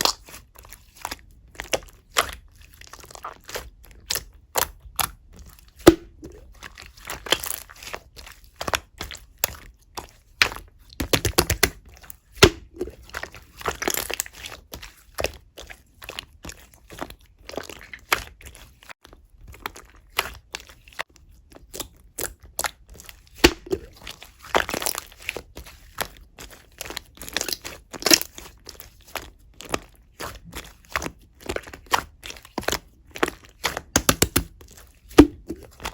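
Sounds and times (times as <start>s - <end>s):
slime clicking and popping: 11.0s - 11.8s, 23.4s - 23.9s, 33.6s - 34.5s.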